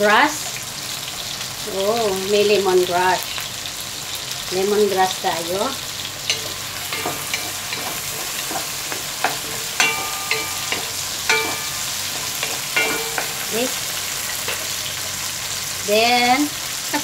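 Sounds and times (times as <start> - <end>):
vegetables sizzling in hot oil: 0.0 - 17.0
spatula knocking against pot: 6.3 - 14.9.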